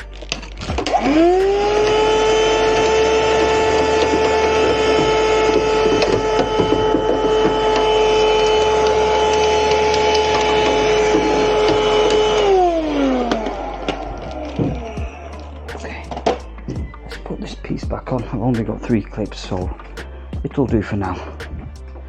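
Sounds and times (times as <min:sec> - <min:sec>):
vacuum motor winding down: 0:00.6 - 0:16.5
vacuum cleaner whine: 0:00.7 - 0:15.2.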